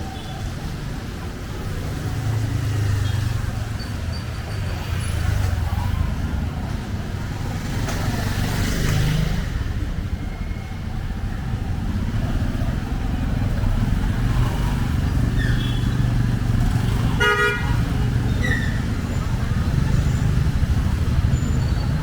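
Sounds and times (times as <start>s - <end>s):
vehicle engines rumbling: 0.0s - 22.0s
vehicle horn toot: 17.2s - 17.8s.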